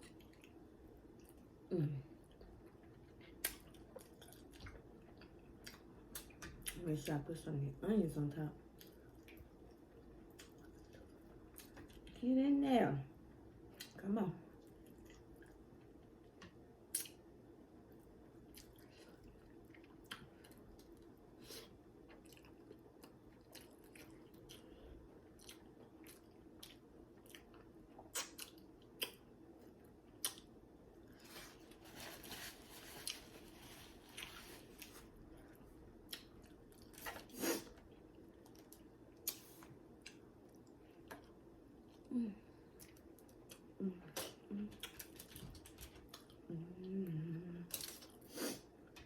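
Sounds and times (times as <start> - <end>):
faint low hum: 0.0 - 49.0
close chewing of food: 2.2 - 6.8, 8.7 - 12.2, 18.0 - 29.3.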